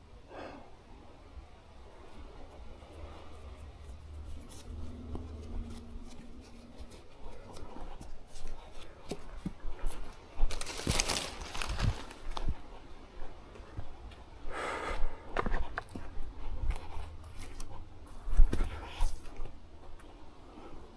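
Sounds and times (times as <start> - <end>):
rustling: 2.0 - 12.7
footsteps on rough trail: 3.8 - 20.2.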